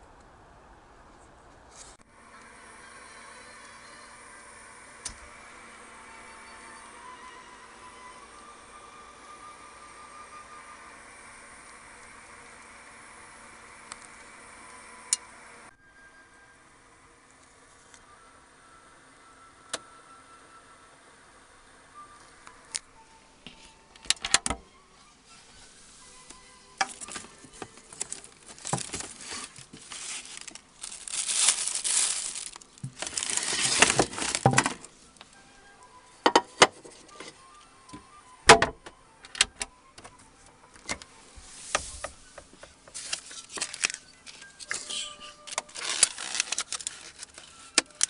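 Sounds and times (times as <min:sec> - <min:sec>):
small hard objects clinking: 0:28.0 - 0:34.8.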